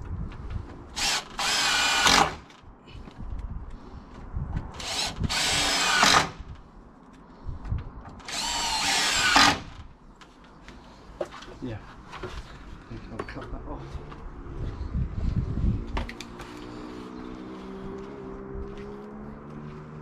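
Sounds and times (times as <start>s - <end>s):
power drill motor whine: 1.0s - 2.4s, 4.8s - 6.4s, 8.2s - 9.8s.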